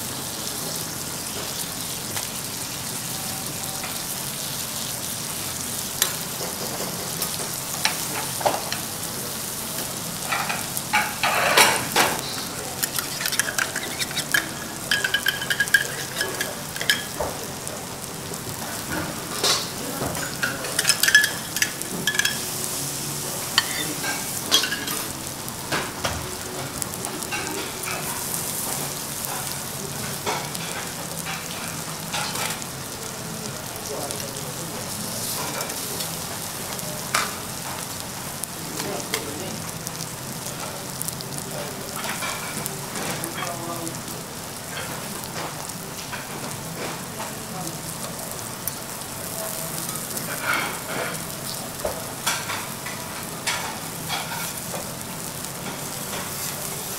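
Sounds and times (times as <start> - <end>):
food sizzling on griddle: 0.0 - 56.9
metal utensils clicking on steel: 12.8 - 17.2, 20.4 - 22.4.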